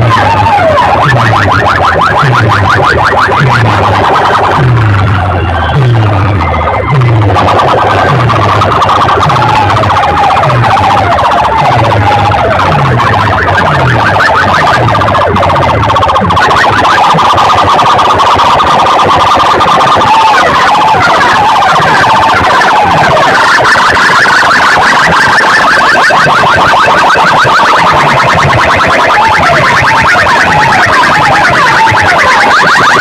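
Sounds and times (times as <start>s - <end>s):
deep bass beat: 0.0s - 23.3s
siren-like wailing tones: 0.0s - 33.0s.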